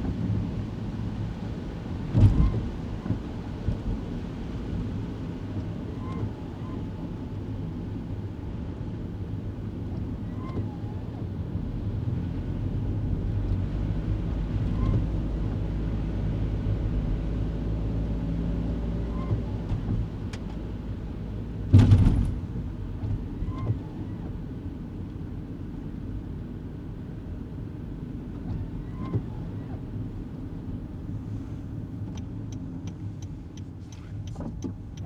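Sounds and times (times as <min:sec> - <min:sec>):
car engine and road noise: 0:00.0 - 0:35.0
loud thud: 0:21.7 - 0:22.4.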